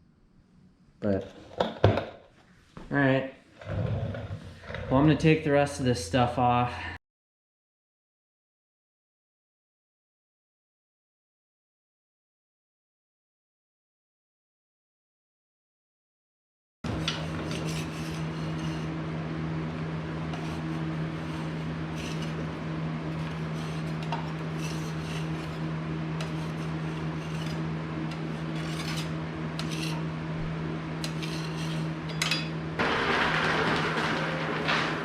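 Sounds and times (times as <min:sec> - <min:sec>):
loud scraping noise: 0:16.9 - 0:19.0, 0:20.1 - 0:30.1, 0:31.0 - 0:32.1, 0:32.8 - 0:35.0
steady hum: 0:16.9 - 0:35.0
hand tools and metal parts clinking: 0:31.0 - 0:35.0.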